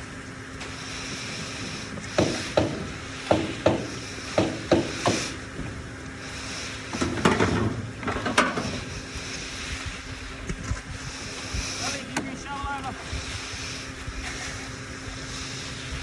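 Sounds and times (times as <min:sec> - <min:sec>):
steady low hum: 0:00.0 - 0:16.0
sharp knocks: 0:02.2 - 0:05.2.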